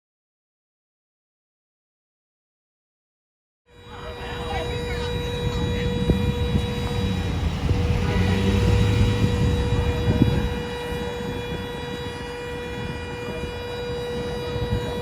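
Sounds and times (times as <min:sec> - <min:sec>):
road and engine rumble: 0:03.8 - 0:15.0
high-pitched electrical whine: 0:04.2 - 0:14.1.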